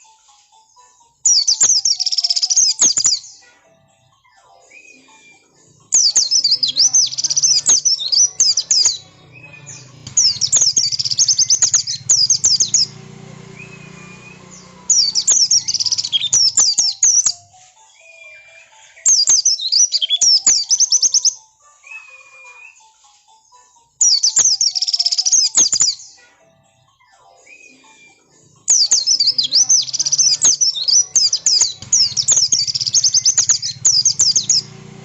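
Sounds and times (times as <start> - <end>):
bird fast twittering song: 1.3 - 3.4, 5.8 - 21.4, 24.0 - 26.2, 28.6 - 35.0.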